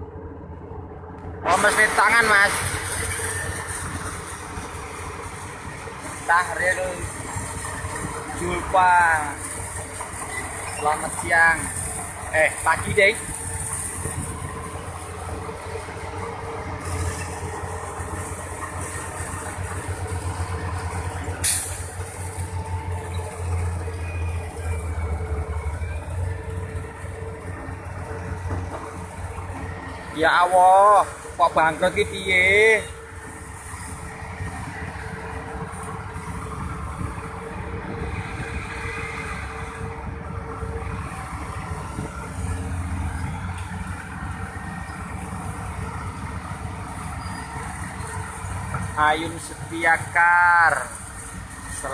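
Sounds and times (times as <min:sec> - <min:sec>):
heavy diesel engine droning: 0:00.0 - 0:51.9
air release hiss: 0:21.4 - 0:21.9.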